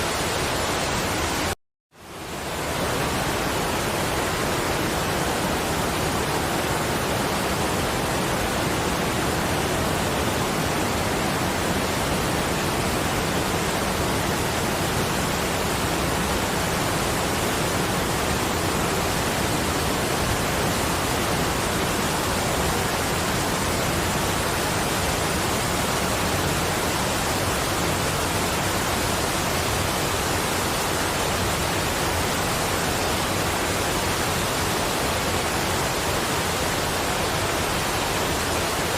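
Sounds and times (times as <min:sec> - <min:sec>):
falling water rushing: 0:00.0 - 0:38.9.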